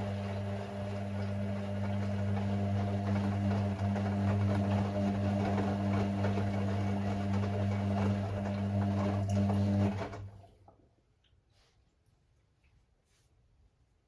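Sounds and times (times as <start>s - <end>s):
washing machine humming: 0.0s - 10.7s.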